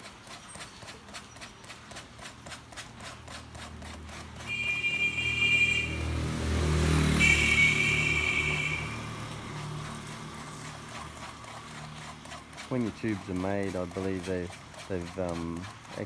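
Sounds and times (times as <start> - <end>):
hand sanding rubber tube: 0.0 - 16.0
vehicle engine passing: 3.8 - 12.4
vehicle horn: 4.4 - 9.6.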